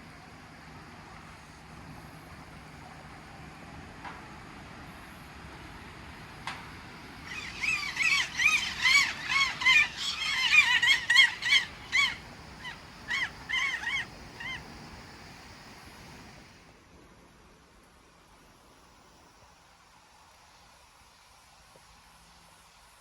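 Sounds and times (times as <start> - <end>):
birds honking: 7.3 - 14.6.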